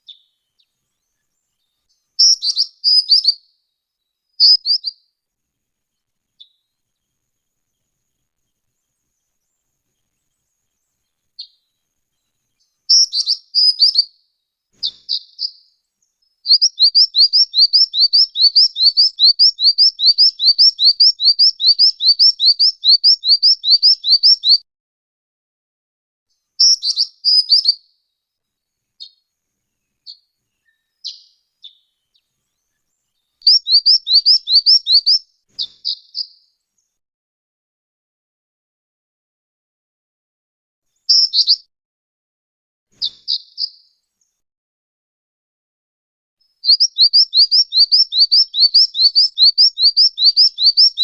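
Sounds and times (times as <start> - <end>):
bird singing high rising notes: 16.4 - 24.6, 33.4 - 36.4, 46.6 - 51.0.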